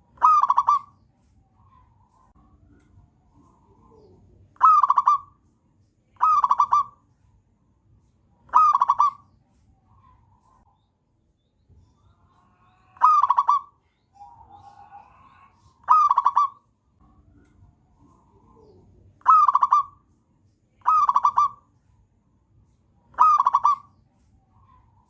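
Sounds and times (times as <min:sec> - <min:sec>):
fainter bird calls: 0:00.0 - 0:07.4, 0:08.3 - 0:22.1, 0:22.7 - 0:25.0
dove cooing: 0:00.1 - 0:01.0, 0:03.3 - 0:05.4, 0:06.2 - 0:07.0, 0:08.5 - 0:09.2, 0:12.7 - 0:16.6, 0:17.9 - 0:20.0, 0:20.8 - 0:21.6, 0:23.1 - 0:24.0.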